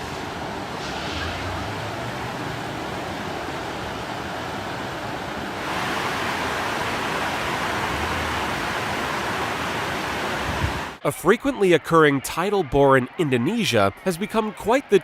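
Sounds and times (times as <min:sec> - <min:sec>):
turbulent water rushing: 0:00.0 - 0:11.0.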